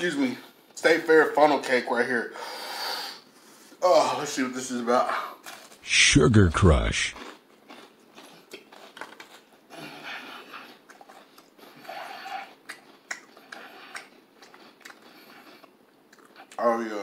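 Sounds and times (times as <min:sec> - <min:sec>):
person chewing crunchy food: 0:07.2 - 0:16.6.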